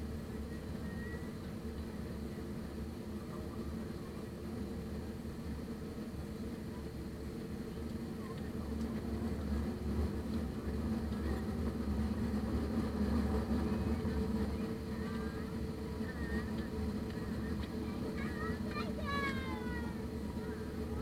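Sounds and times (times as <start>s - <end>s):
aircraft cabin engine drone: 0.0s - 21.0s.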